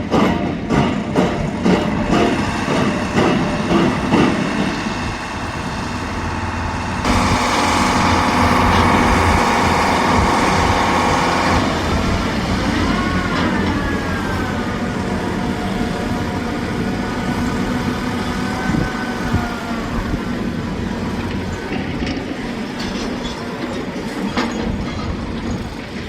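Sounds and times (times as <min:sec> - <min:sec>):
vehicle engine running: 0:02.0 - 0:22.2.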